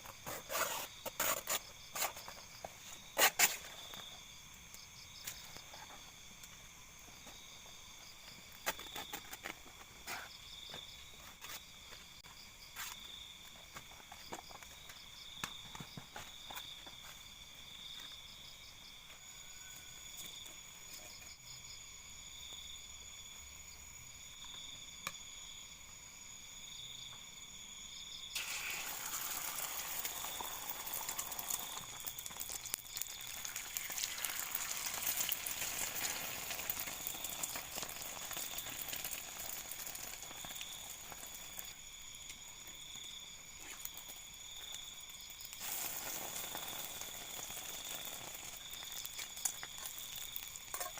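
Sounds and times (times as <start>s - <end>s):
insects chirping: 0.0s - 50.9s
food sizzling in a pan: 28.4s - 41.8s, 45.5s - 50.9s.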